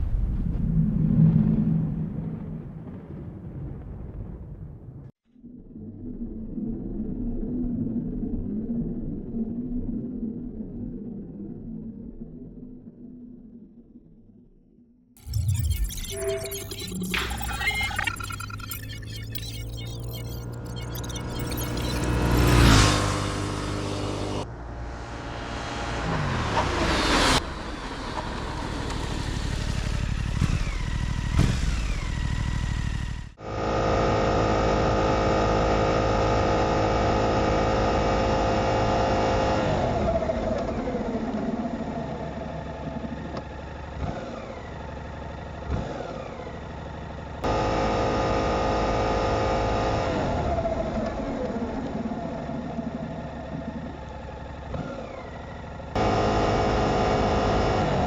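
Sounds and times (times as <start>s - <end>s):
motorcycle engine revving: 22.1s - 26.9s.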